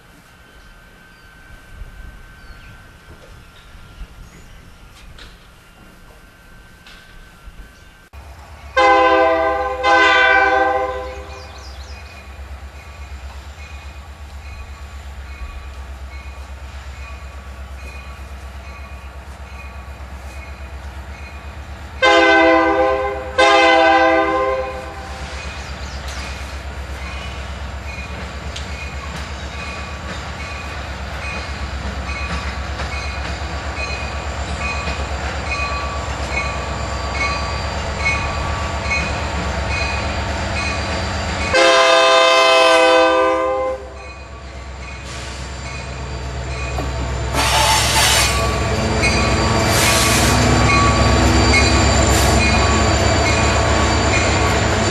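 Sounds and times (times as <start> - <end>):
low rumble of train: 0.0 - 54.9
locomotive air horn blasts: 8.8 - 11.5, 22.0 - 25.3, 41.5 - 44.0, 47.3 - 52.9.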